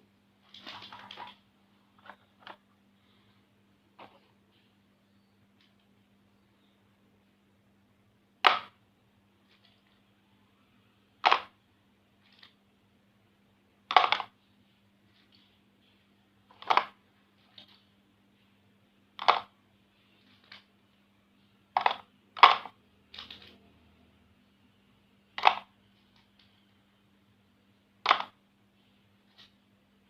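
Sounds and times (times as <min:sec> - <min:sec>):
plastic markers clattering: 0:11.2 - 0:11.6, 0:13.9 - 0:14.4, 0:16.5 - 0:17.8, 0:19.2 - 0:19.5, 0:21.8 - 0:23.6, 0:25.3 - 0:26.4.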